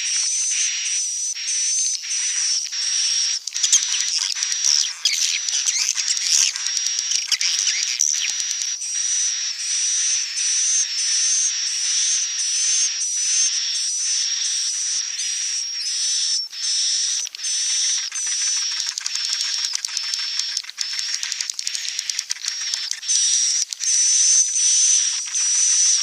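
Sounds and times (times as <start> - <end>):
swiftlets twittering: 3.3 - 8.7, 16.4 - 26.0.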